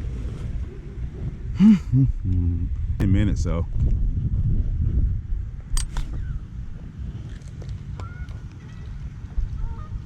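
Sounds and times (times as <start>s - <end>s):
wind noise on microphone: 0.0s - 10.0s
sharp click: 5.8s - 6.3s.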